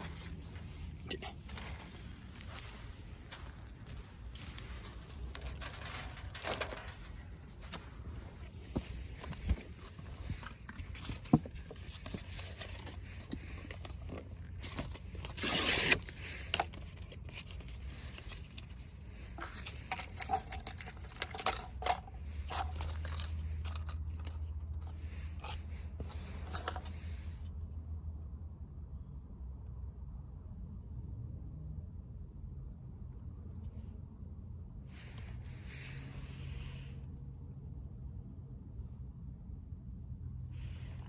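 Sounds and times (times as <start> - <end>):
clicks and scrapes of handling: 4.4 - 27.6.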